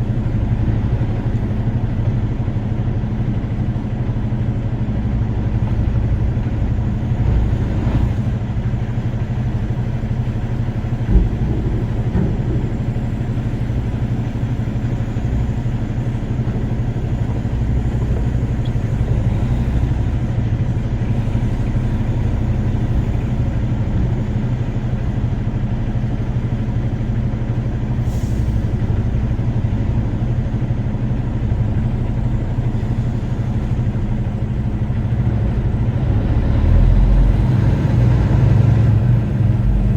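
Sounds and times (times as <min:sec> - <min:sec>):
truck engine drone: 0:00.0 - 0:39.9
knock: 0:11.1 - 0:13.3.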